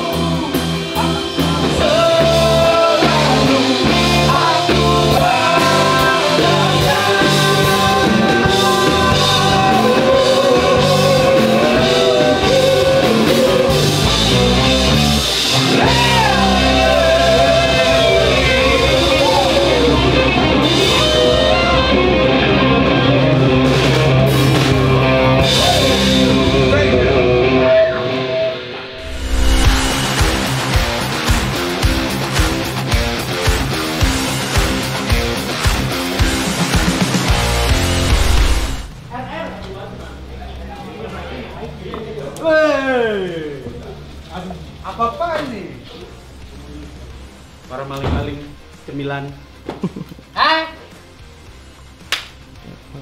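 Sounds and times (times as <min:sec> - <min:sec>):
person singing lead vocal: 0:00.0 - 0:14.5, 0:15.7 - 0:21.9
pop-rock band playing: 0:00.0 - 0:39.1.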